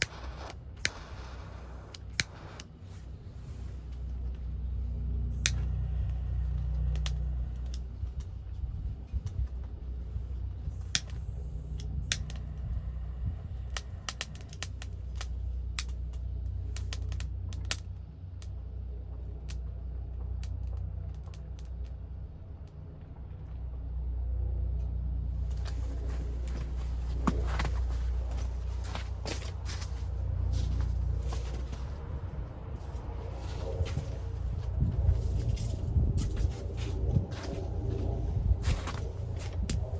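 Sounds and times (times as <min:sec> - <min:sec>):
wood fire crackling and popping: 0:00.0 - 0:02.6, 0:10.7 - 0:22.0, 0:38.6 - 0:39.9
low steady fire rumble: 0:00.0 - 0:39.9.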